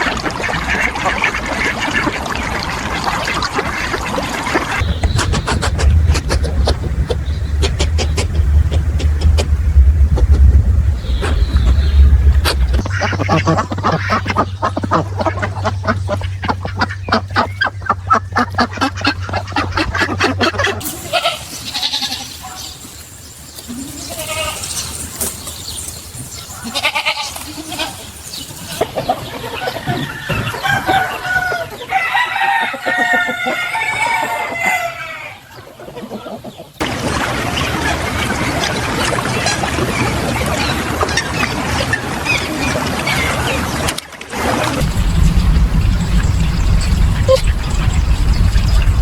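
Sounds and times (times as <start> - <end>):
chickens clucking and calling: 0.0 - 36.9.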